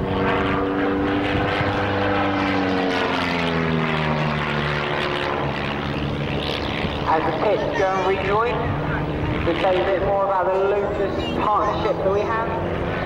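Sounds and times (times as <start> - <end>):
propeller planes flying past: 0.0 - 13.0.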